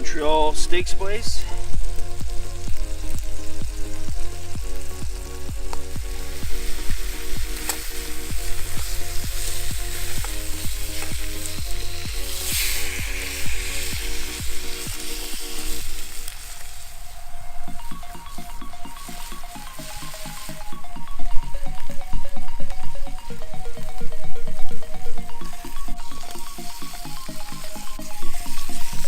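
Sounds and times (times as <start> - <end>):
background music with steady beat: 0.0 - 29.0
food sizzling in a frying pan: 1.5 - 20.7, 25.6 - 29.0.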